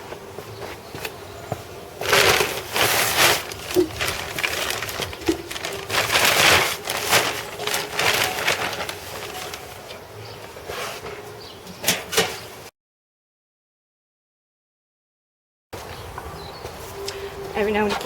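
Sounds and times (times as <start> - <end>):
sawdust crunching in metal tin: 2.0 - 9.7.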